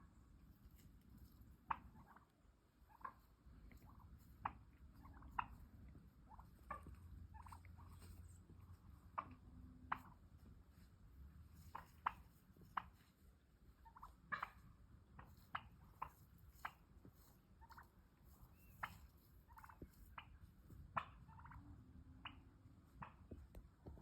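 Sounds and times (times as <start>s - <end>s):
faint low hum: 0.0s - 24.0s
turkey clucking: 0.2s - 10.9s, 11.6s - 24.0s.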